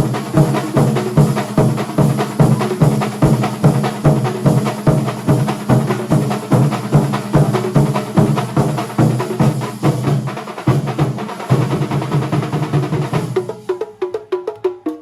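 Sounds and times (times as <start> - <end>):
percussion ensemble drumming: 0.0 - 15.0.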